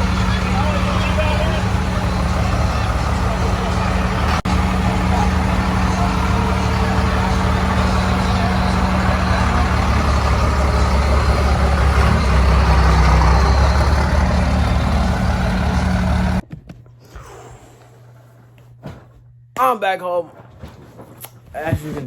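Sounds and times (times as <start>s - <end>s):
road and traffic noise: 0.0s - 16.4s
vehicle engine droning: 0.0s - 16.4s.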